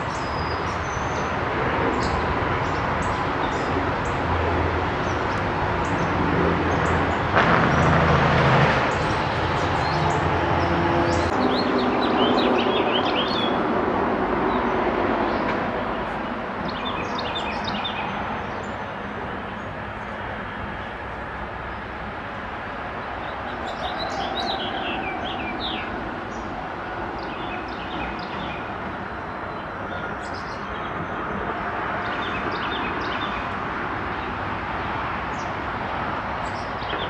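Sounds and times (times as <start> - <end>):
rush of noise: 0.0 - 37.0
small birds chirping: 11.1 - 13.6, 23.2 - 26.4.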